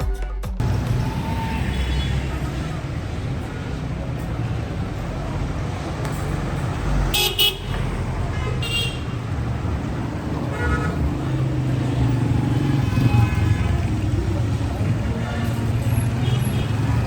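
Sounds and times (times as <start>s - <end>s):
traffic engines running: 0.6s - 17.0s
vehicle horn tooting: 1.4s - 2.6s, 7.1s - 9.3s, 10.4s - 11.5s, 12.6s - 14.1s, 16.0s - 17.0s.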